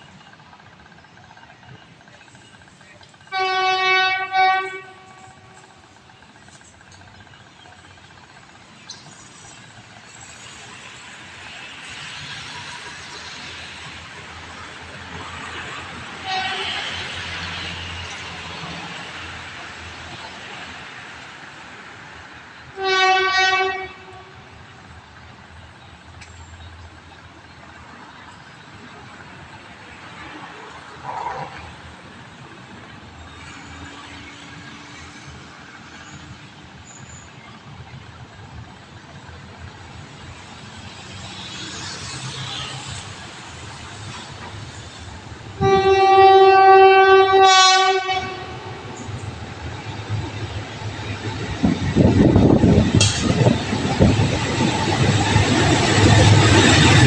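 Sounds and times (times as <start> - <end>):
passing train rumble: 0.0 - 57.0
train horn blast: 3.3 - 5.8, 16.2 - 17.0, 22.7 - 24.6, 45.5 - 49.1.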